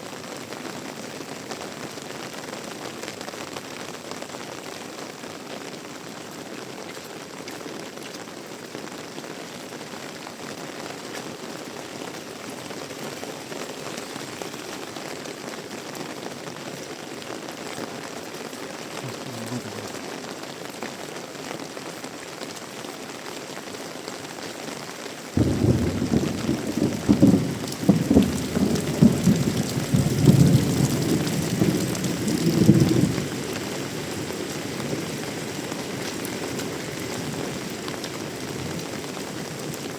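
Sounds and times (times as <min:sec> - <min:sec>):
heavy rain falling: 0:00.0 - 0:39.9
thunder rumbling: 0:25.4 - 0:34.2.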